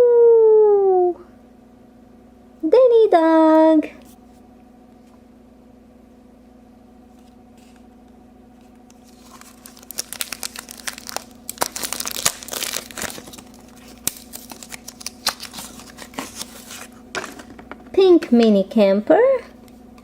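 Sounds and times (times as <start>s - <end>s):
faint steady hum: 0.0s - 20.0s
packaging crinkling and tearing: 8.9s - 17.5s.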